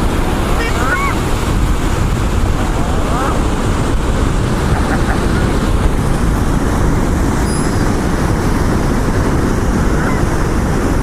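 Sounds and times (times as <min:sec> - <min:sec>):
breaking surf: 0:00.0 - 0:11.0
wind rumble on microphone: 0:00.0 - 0:11.0
faint seagull calls: 0:09.9 - 0:10.5.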